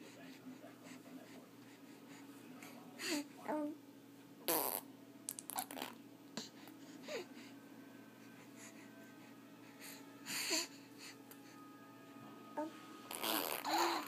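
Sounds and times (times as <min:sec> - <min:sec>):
baby blowing raspberries: 0:13.1 - 0:14.0
baby voice squeak: 0:13.1 - 0:14.0.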